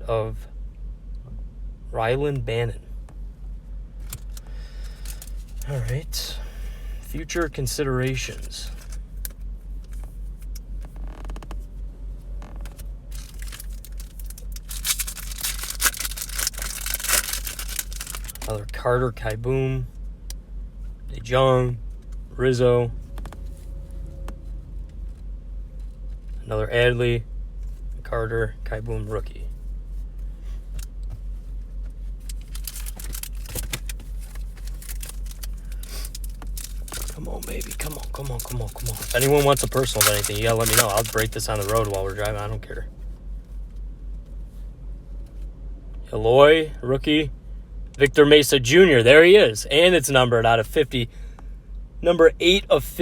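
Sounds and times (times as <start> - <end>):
car humming: 0.0 - 53.0
trading cards and wrappers rustling: 4.0 - 6.1, 7.1 - 10.6, 12.7 - 18.7, 30.6 - 42.6.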